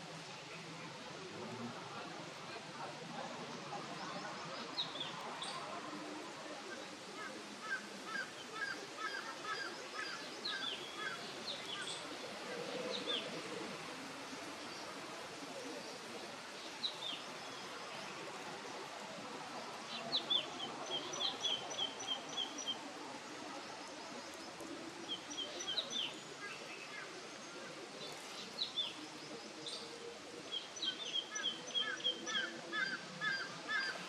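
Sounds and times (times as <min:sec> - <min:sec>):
background hiss: 0:00.0 - 0:34.0
wild birds chirping: 0:07.5 - 0:34.0.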